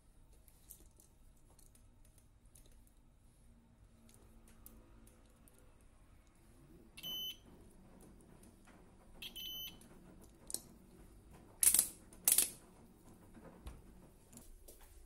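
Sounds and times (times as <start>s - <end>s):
electronic beeps: 7.0s - 7.4s, 9.2s - 9.8s.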